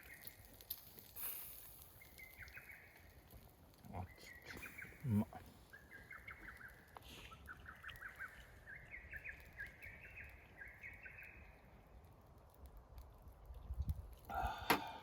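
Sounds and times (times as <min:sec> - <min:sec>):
songbird chirping: 0:01.8 - 0:03.2, 0:03.8 - 0:11.9.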